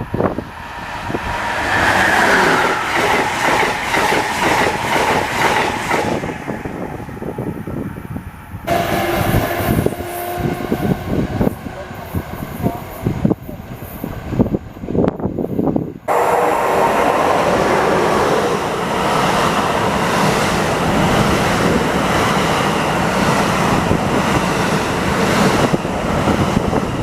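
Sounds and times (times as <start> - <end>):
passenger train rushing past: 0.0 - 27.0.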